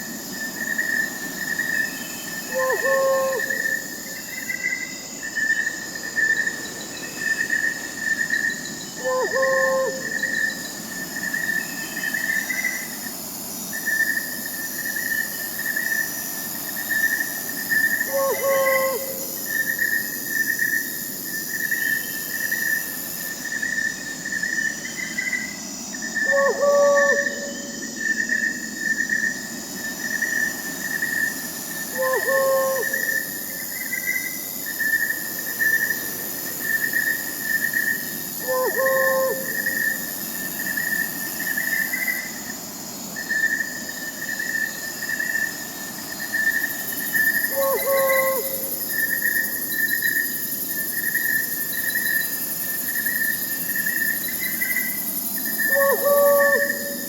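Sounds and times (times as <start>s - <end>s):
crickets chirping: 0.0s - 57.0s
high insect hum: 0.0s - 57.0s
owl hooting: 2.5s - 3.8s, 9.0s - 10.3s, 18.1s - 19.4s, 26.2s - 27.7s, 31.9s - 33.3s, 38.4s - 40.0s, 47.4s - 48.8s, 55.6s - 57.0s.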